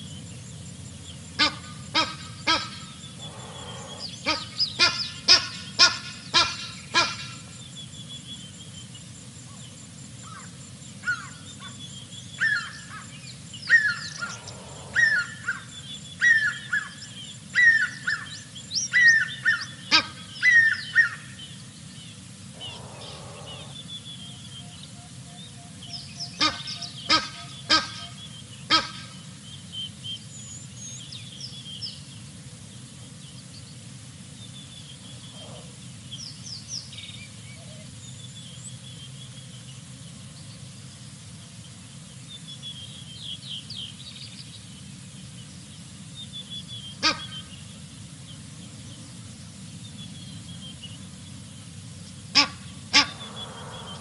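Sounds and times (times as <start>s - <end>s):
low background rumble: 0.0s - 54.0s
sharp bird calls: 1.3s - 7.6s, 10.2s - 29.3s, 52.4s - 54.0s
short down-slurred bird calls: 1.4s - 7.6s, 10.2s - 21.2s, 22.6s - 25.0s, 35.2s - 35.8s, 52.4s - 54.0s.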